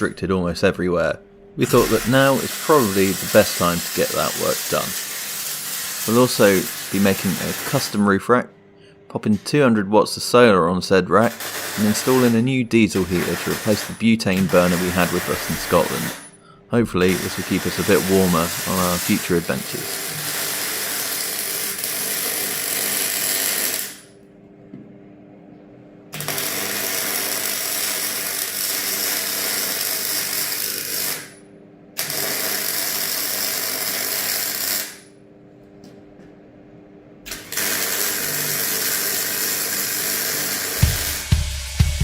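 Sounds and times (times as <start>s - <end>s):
power tool running: 1.6s - 8.0s, 11.3s - 12.4s, 13.0s - 16.3s, 16.9s - 24.1s, 37.3s - 42.0s.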